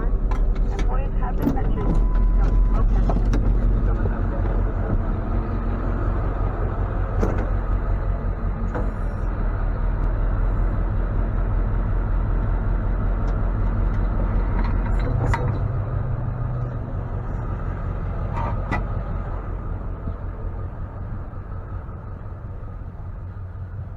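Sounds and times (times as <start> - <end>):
tow truck engine running: 0.0 - 23.9.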